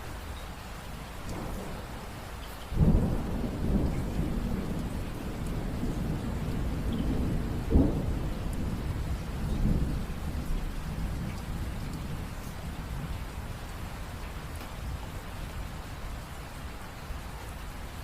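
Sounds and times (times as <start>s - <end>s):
steady rain: 0.0s - 18.0s
thunder rumbling: 1.3s - 2.1s, 2.8s - 16.2s
sharp thunder clap: 2.8s - 12.3s.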